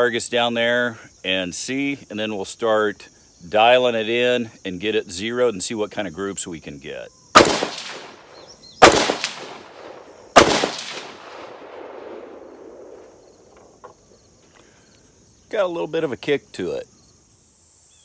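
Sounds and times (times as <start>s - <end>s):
gunshots with long echo: 7.4s - 13.2s.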